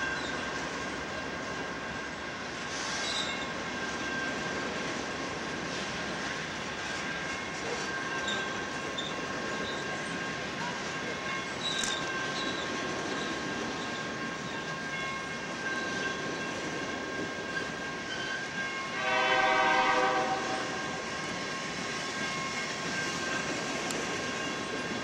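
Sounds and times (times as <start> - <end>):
train wheels rumbling on rails: 0.0 - 25.0
locomotive air horn: 18.9 - 21.0.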